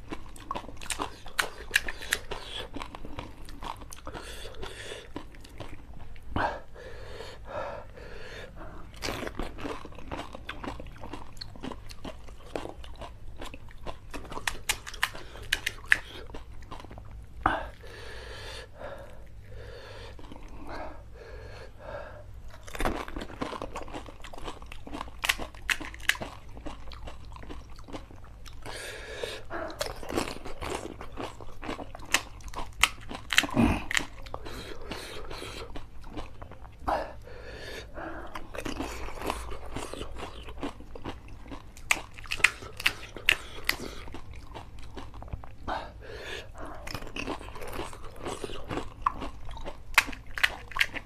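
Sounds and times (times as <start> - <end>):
crisp shells crunching when chewed: 0.0 - 6.3, 8.9 - 17.2, 22.5 - 28.8, 29.4 - 36.8, 38.2 - 45.7, 46.5 - 51.0.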